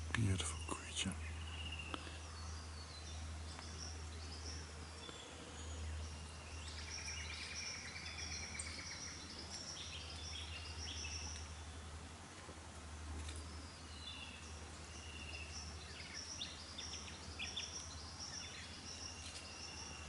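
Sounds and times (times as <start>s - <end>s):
birds chirping and whistling: 0.2s - 11.6s, 13.4s - 20.0s.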